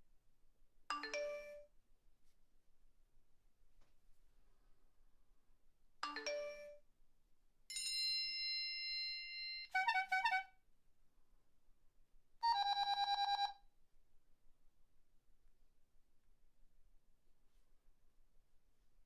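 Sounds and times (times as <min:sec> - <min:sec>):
held bell-like tone: 0:07.7 - 0:09.8.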